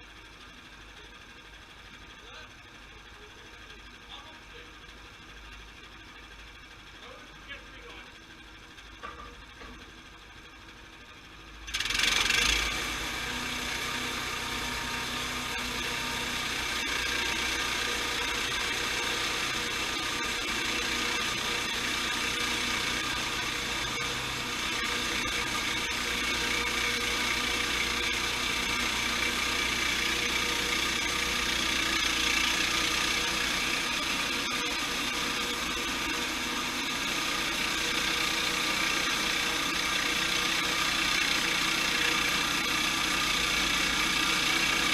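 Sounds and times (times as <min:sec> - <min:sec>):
sawmill machinery whining: 0:09.8 - 0:44.9.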